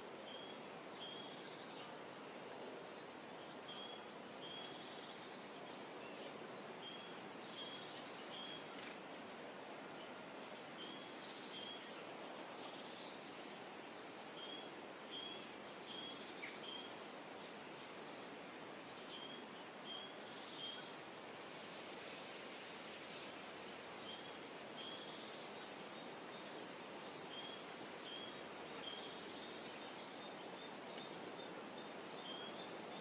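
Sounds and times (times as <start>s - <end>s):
outdoor background hiss: 0.0s - 33.0s
songbird chirping: 0.0s - 33.0s.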